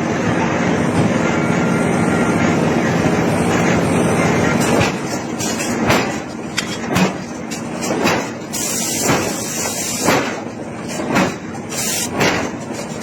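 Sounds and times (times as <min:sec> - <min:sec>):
steady background noise: 0:00.0 - 0:13.0
hammer striking iron: 0:04.5 - 0:11.5, 0:12.1 - 0:12.6.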